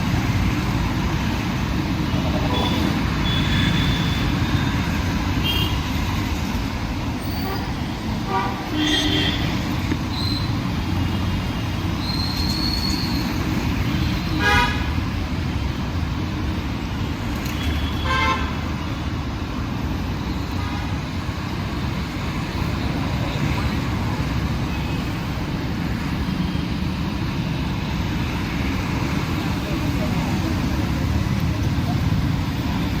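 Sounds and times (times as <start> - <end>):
road traffic rumble: 0.0 - 33.0
vehicle horn honks: 2.6 - 4.4.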